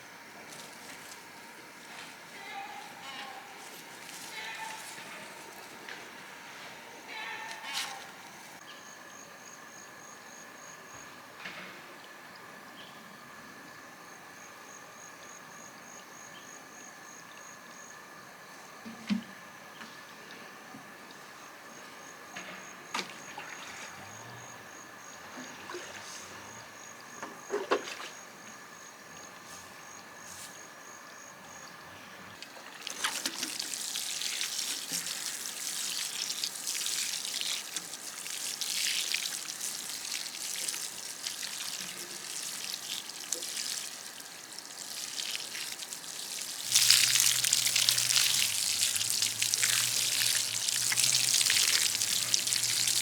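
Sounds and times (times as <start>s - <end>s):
low steady hum: 27.9s - 53.0s
water trickling and pouring: 32.7s - 53.0s.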